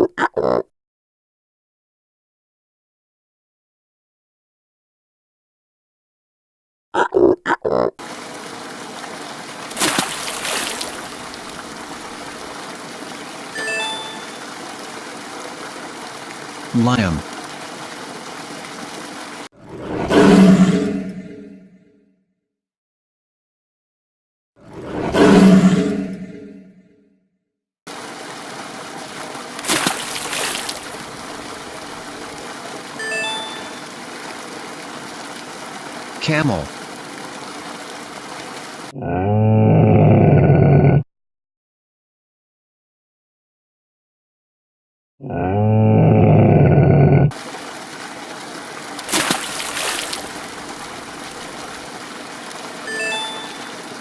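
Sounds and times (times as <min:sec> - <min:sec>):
water trickling: 0:08.0 - 0:19.5, 0:27.9 - 0:38.9, 0:47.4 - 0:54.0
water splash: 0:08.0 - 0:21.2, 0:27.9 - 0:38.9, 0:47.4 - 0:54.0
lion roaring: 0:39.0 - 0:41.0, 0:45.2 - 0:47.4.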